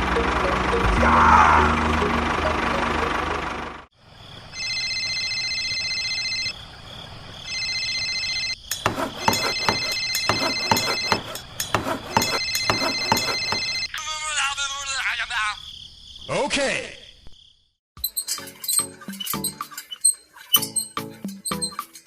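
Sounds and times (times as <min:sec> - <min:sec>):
steady motor noise: 0:00.0 - 0:03.9, 0:08.8 - 0:13.9
electronic ringing tone: 0:04.5 - 0:06.6, 0:07.5 - 0:08.6, 0:09.5 - 0:11.3, 0:12.1 - 0:13.9.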